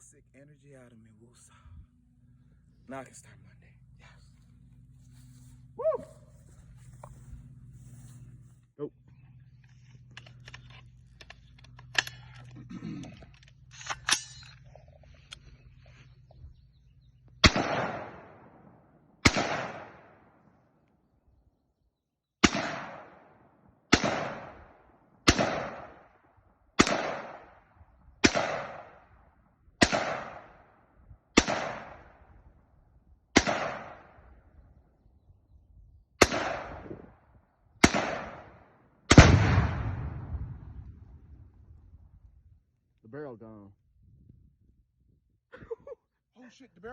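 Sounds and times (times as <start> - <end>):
rifle shots with echo: 17.4 - 20.5, 22.4 - 26.2, 26.8 - 29.2, 29.8 - 32.5, 33.3 - 34.5, 36.2 - 41.4
explosive target boom: 39.1 - 41.5.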